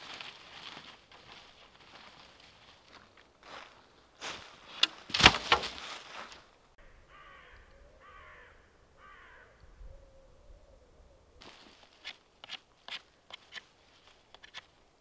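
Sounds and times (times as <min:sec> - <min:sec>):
close rustling and knocking: 0:04.8 - 0:05.9
crow cawing: 0:06.8 - 0:09.8.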